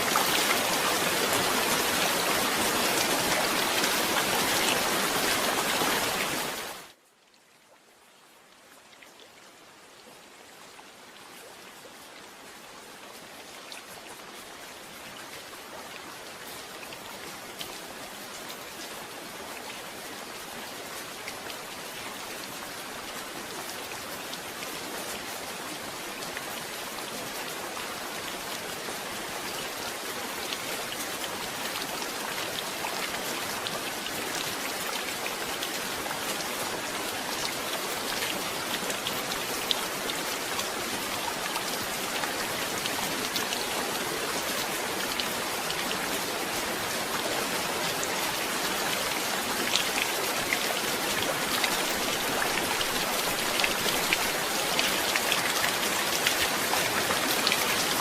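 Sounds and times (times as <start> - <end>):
raindrops pattering: 28.0 - 58.0.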